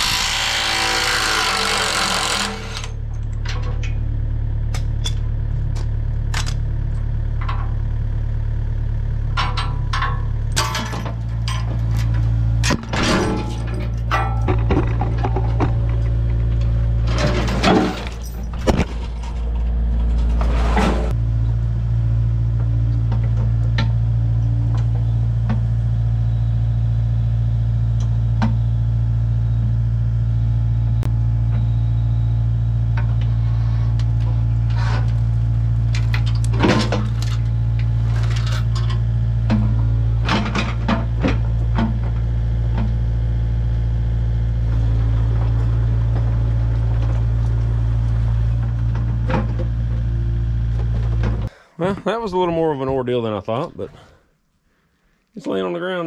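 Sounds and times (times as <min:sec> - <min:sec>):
metal clanks and knocks: 0:01.6 - 0:06.6, 0:07.3 - 0:07.9, 0:09.2 - 0:21.2, 0:35.8 - 0:43.0, 0:44.6 - 0:51.5
engine idling: 0:01.6 - 0:51.6.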